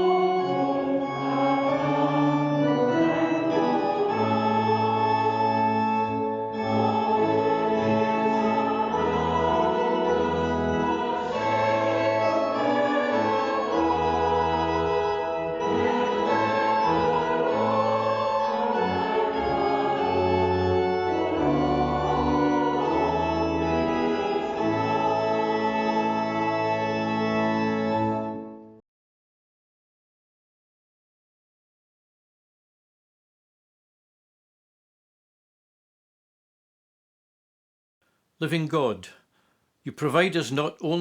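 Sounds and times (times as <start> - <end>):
church organ playing held chords: 0.0 - 28.8.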